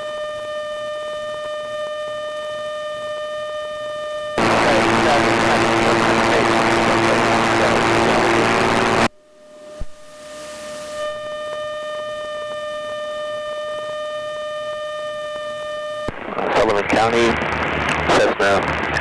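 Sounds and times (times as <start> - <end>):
high siren-like tone: 0.0 - 16.1
radio static rushing noise: 4.4 - 9.1, 9.7 - 11.2, 16.1 - 19.0.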